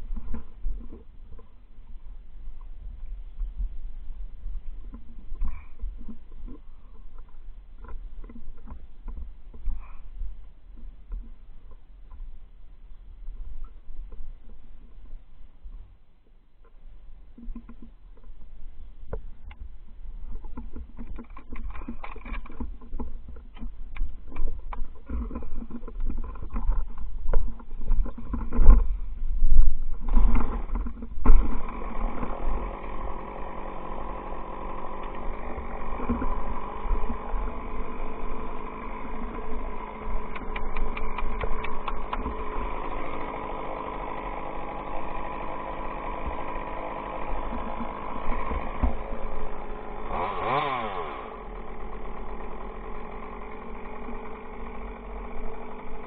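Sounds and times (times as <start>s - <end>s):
chainsaw running: 20.2s - 28.9s, 29.9s - 56.0s.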